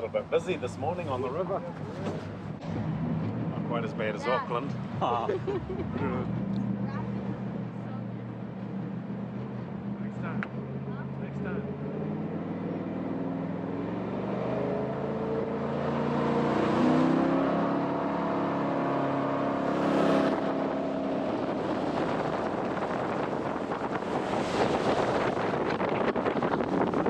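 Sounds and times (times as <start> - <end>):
boat engine revving: 0.0 - 27.0
rushing water: 19.7 - 27.0
wind buffeting microphone: 20.2 - 27.0.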